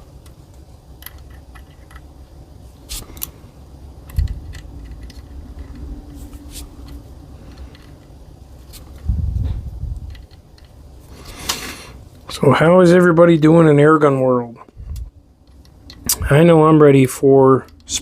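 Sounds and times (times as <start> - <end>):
metallic clicks and tool scraping: 1.0 - 2.1, 4.0 - 9.1, 14.9 - 16.2.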